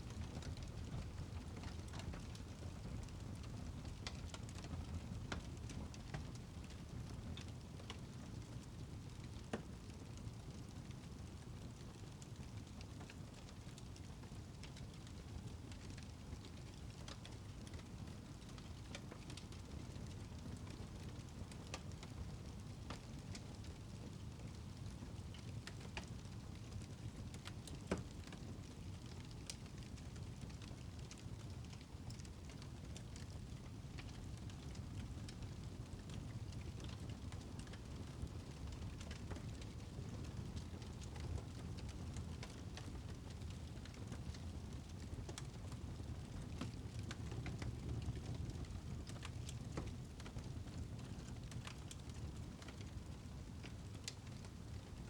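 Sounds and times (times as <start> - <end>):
low rumble of flames: 0.0 - 55.0
wood fire crackling: 0.0 - 55.0.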